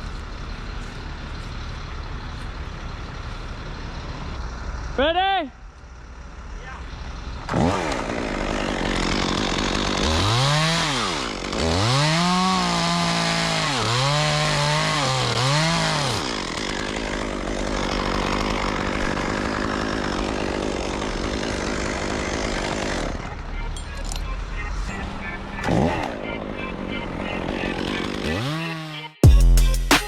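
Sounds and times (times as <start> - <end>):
chainsaw engine revving: 7.4 - 23.5, 24.9 - 29.2.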